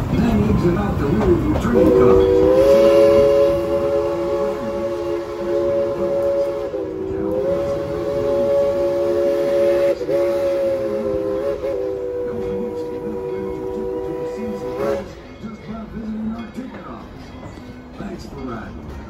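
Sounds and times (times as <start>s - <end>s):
steam locomotive chime whistle: 1.7s - 15.9s.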